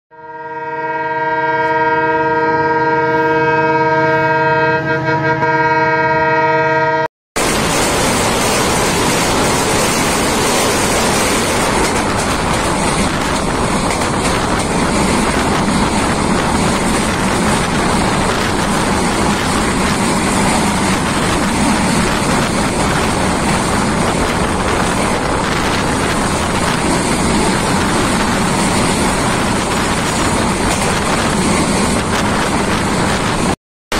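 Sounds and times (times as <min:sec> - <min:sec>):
train horn blast: 0:00.1 - 0:07.1
train wheels on rails: 0:07.4 - 0:33.6
wind rushing: 0:07.4 - 0:33.6.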